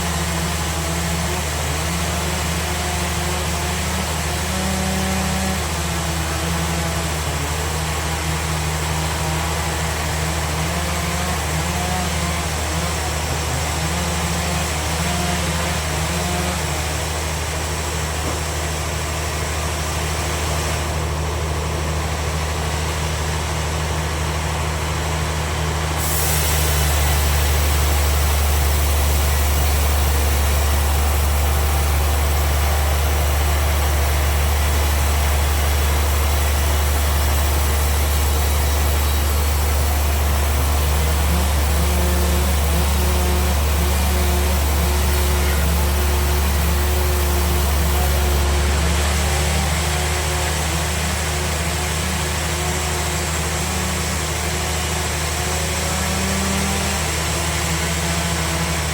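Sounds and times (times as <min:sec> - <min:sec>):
bandsaw machine humming: 0:00.0 - 0:58.9.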